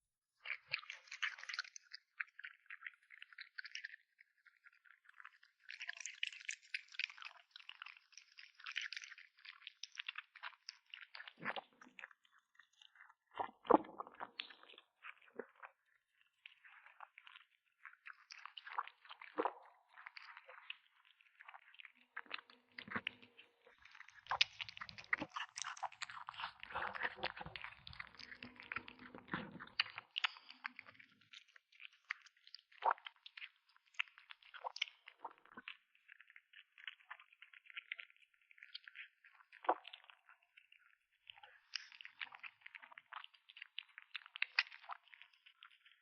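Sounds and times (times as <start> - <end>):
kitten chewing and biting: 0.5 - 46.0.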